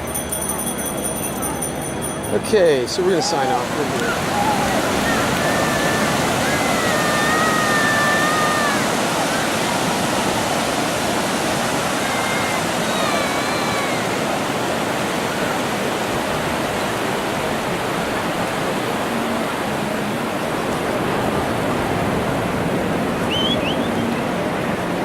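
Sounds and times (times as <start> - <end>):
ocean surf washing: 1.7 - 25.0
faint short whistling calls: 23.3 - 24.1.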